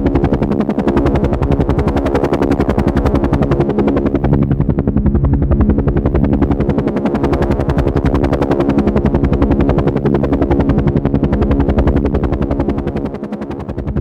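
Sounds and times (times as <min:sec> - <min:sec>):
helicopter rotor blades beating: 0:00.0 - 0:14.0.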